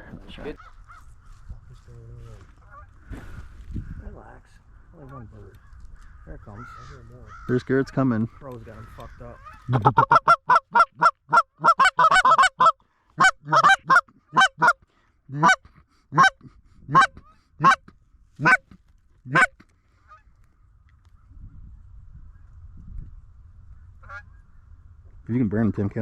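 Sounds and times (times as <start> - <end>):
goose honking and clucking: 8.6 - 20.4, 24.0 - 24.4.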